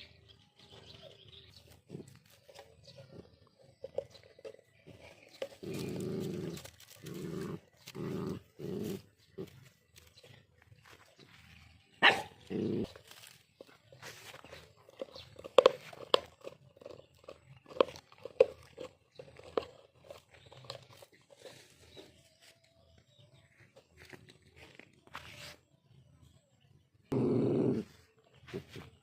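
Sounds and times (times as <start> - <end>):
dogs biting and chewing fruit: 0.1 - 25.3
dog barking: 12.0 - 12.4.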